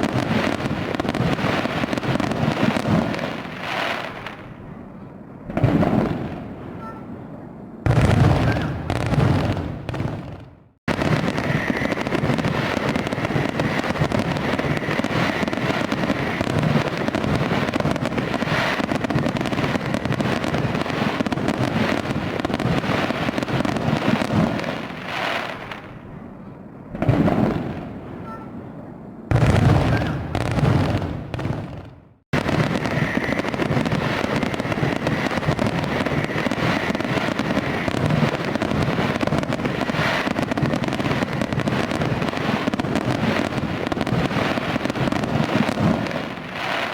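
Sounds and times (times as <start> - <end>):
fireworks crackling and popping: 0.0 - 4.6, 5.4 - 6.6, 7.8 - 26.0, 26.9 - 28.0, 29.3 - 46.9
deep fireworks booms: 0.0 - 46.9.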